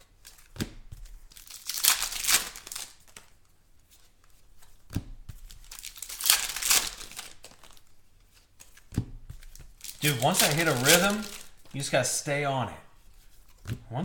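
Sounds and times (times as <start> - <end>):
wrapper tearing and crinkling: 1.3 - 3.3, 5.4 - 7.9, 9.4 - 11.9.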